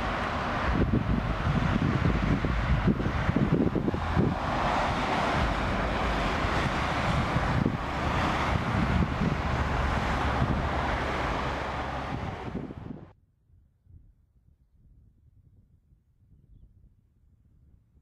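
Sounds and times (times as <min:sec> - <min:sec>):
train wheels rumbling on rails: 0:00.0 - 0:13.1
wind buffeting microphone: 0:00.0 - 0:13.1.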